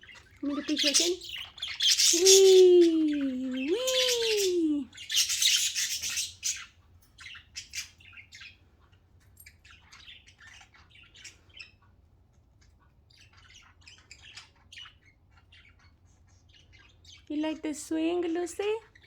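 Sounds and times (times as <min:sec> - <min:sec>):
budgerigars chirping and squawking: 0:00.0 - 0:19.0.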